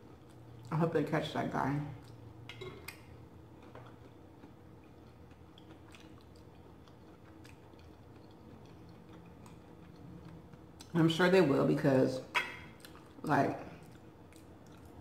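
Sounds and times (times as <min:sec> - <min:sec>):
quiet chewing: 0:02.0 - 0:11.0, 0:12.4 - 0:15.0.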